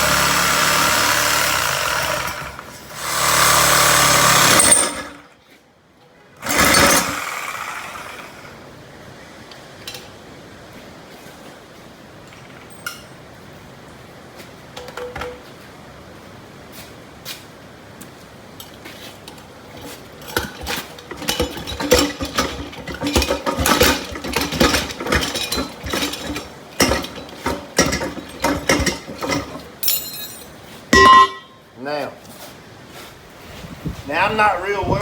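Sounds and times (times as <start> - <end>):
metal clanking and rattling: 19.3 - 31.6.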